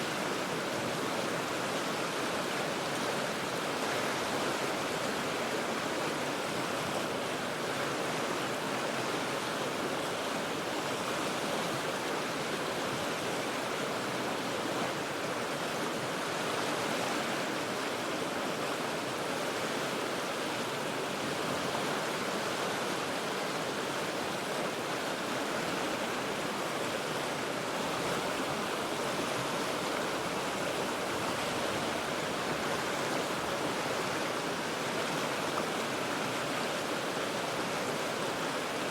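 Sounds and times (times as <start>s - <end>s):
river rushing over rocks: 0.0s - 38.9s.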